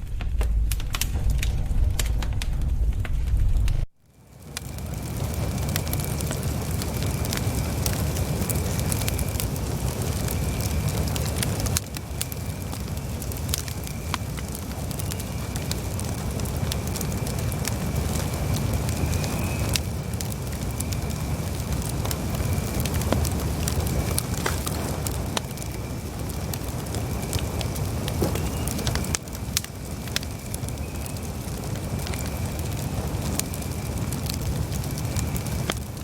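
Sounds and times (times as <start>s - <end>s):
campfire crackling: 0.0s - 36.0s
faint high whistle: 18.4s - 19.8s, 28.2s - 29.1s.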